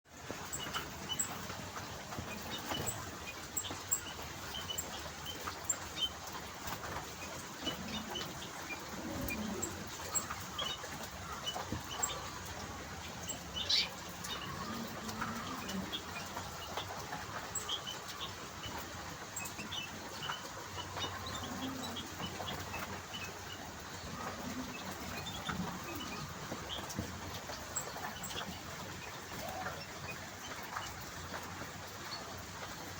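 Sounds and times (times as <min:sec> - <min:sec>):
finches chirping: 0:13.2 - 0:16.9.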